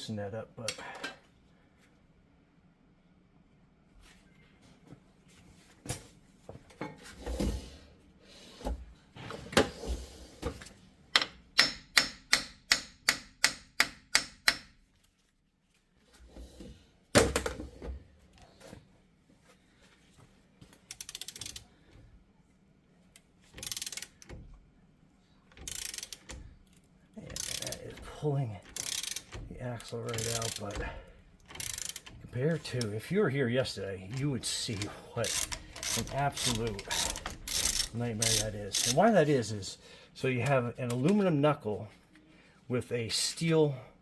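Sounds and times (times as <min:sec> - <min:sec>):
hammer tapping metal shaft: 0:11.2 - 0:14.8.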